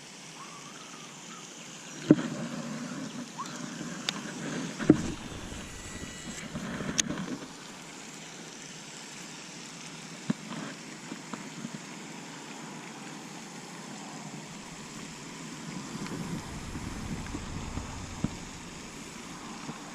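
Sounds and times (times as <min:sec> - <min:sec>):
light rain hissing: 0:03.8 - 0:19.9.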